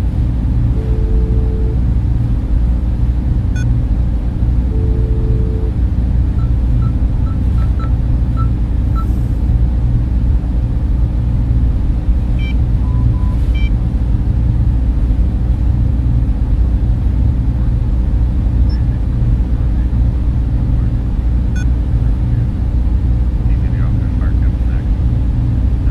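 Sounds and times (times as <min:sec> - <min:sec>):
server cooling fans droning: 0:00.0 - 0:25.9.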